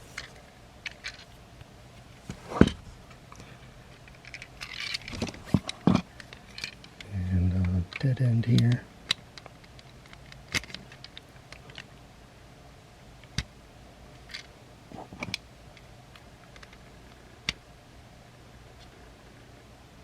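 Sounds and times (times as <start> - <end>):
rustling handling of plastic parts: 0.0 - 7.0.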